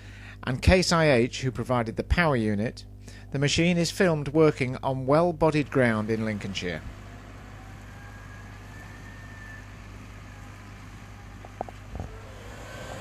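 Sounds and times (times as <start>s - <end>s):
tractor engine drone: 4.4s - 13.0s.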